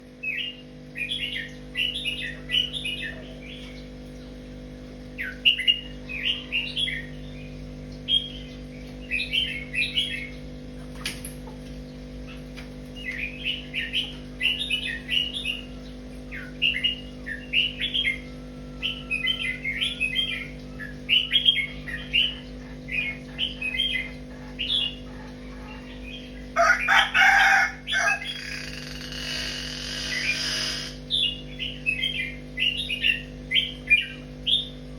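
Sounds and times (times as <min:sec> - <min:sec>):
small birds chirping: 0:11.9 - 0:34.9
rooster crowing: 0:18.2 - 0:20.3, 0:26.6 - 0:31.0.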